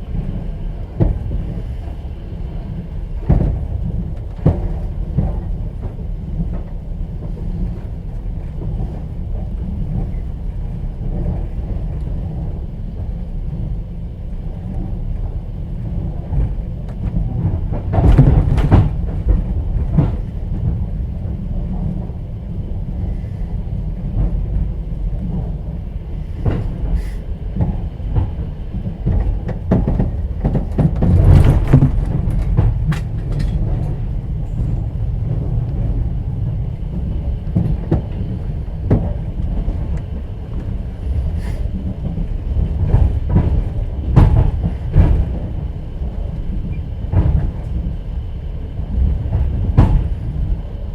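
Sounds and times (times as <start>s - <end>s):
train interior rumble: 0.0s - 50.9s
wheel clatter on rails: 14.5s - 50.9s.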